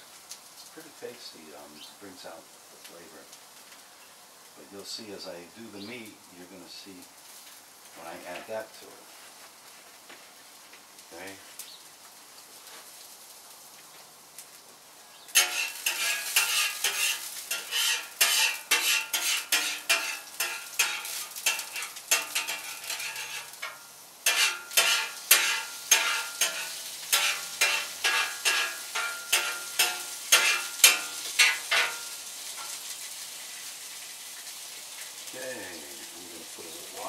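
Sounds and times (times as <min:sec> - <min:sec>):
food sizzling: 0:00.0 - 0:37.0
metal spatula scraping grill: 0:15.3 - 0:35.3.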